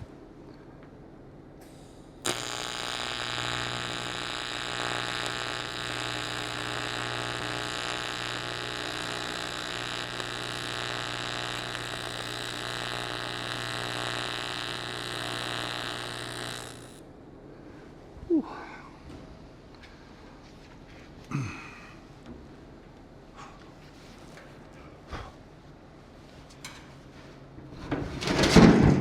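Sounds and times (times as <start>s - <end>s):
welding arc striking crack: 1.7s - 17.0s
welding arc buzzing: 2.2s - 17.0s.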